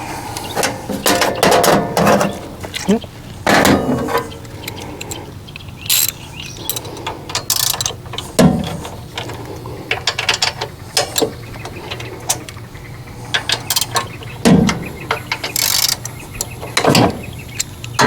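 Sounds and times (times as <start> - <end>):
ratchet clicking: 5.9 - 8.3, 14.7 - 18.0.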